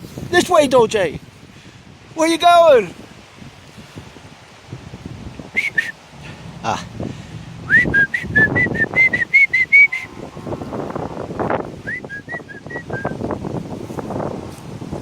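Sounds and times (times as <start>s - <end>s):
low wind or handling noise: 0.0s - 15.0s
short high whistled notes: 7.7s - 10.1s.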